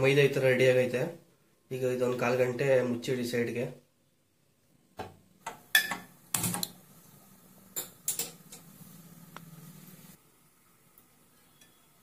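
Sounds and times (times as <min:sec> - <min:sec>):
kitchen utensils clinking: 0:05.7 - 0:06.7, 0:07.8 - 0:08.7.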